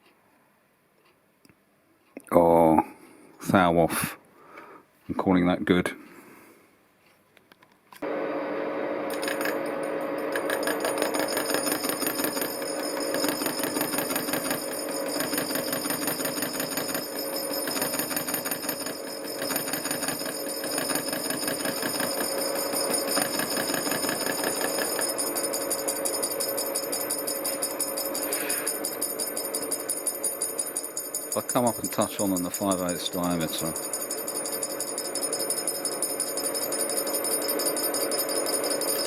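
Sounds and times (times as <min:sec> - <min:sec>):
milling machine whine and rattle: 0:08.0 - 0:39.0.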